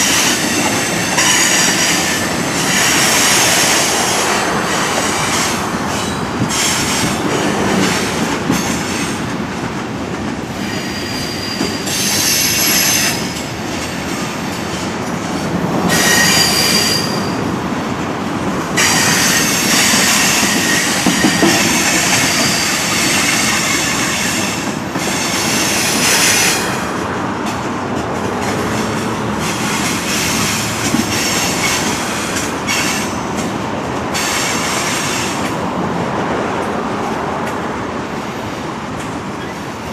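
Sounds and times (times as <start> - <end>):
steel wheels squealing: 0.0 - 4.0, 10.5 - 14.9, 15.9 - 17.5, 18.8 - 26.9, 28.4 - 33.2
freight train rumble and clatter: 0.0 - 39.9.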